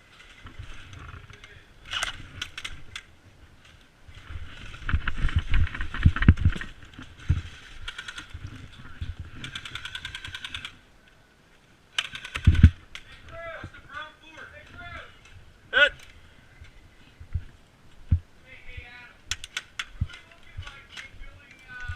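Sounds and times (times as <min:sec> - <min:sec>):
airsoft gun firing bursts: 0:12.0 - 0:12.8.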